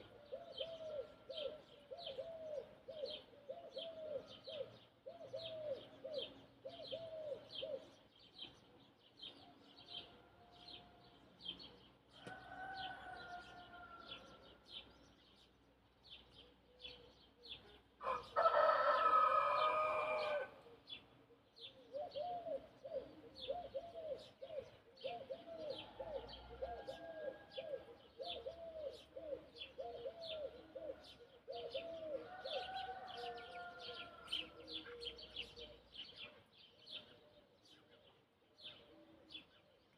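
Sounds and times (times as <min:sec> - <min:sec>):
small birds chirping: 0:00.0 - 0:39.9
distant rooster crow: 0:09.6 - 0:11.2, 0:12.1 - 0:14.7, 0:18.0 - 0:20.6, 0:25.7 - 0:27.9, 0:31.7 - 0:35.2
rooster crowing: 0:12.2 - 0:14.4, 0:18.0 - 0:20.6, 0:32.2 - 0:34.7.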